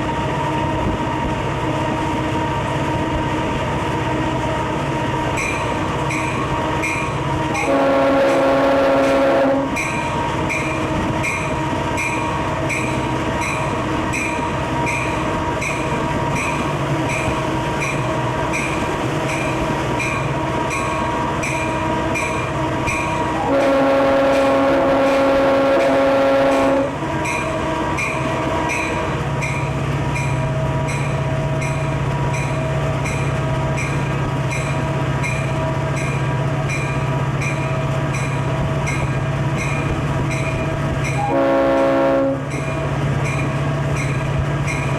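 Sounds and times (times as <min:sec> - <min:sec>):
diesel locomotive engine drone: 0:00.0 - 0:44.9
locomotive air horn blast: 0:07.5 - 0:09.8, 0:23.3 - 0:27.0, 0:41.2 - 0:42.6.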